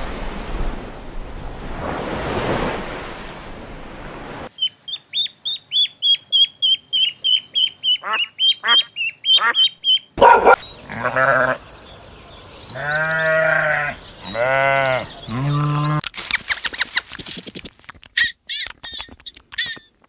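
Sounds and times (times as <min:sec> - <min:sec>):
farm animal bleating: 0:10.8 - 0:11.7, 0:12.7 - 0:16.0
fast clicks and high chirps: 0:16.2 - 0:20.0.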